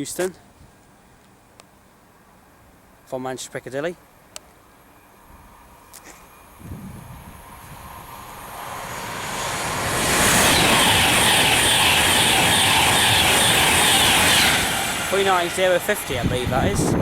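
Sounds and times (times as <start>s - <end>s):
electric train passing at speed: 4.0s - 17.0s.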